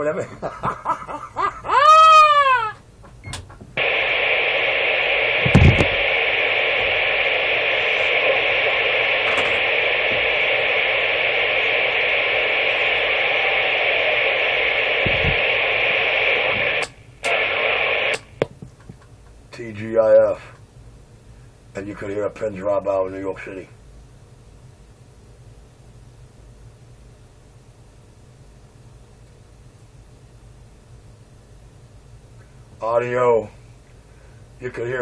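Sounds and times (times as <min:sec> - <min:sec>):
radio static hiss: 0:00.0 - 0:23.9, 0:32.3 - 0:35.0.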